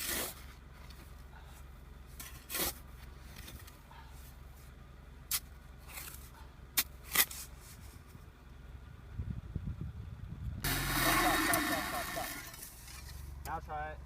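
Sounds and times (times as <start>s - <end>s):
car engine running: 7.8s - 13.4s.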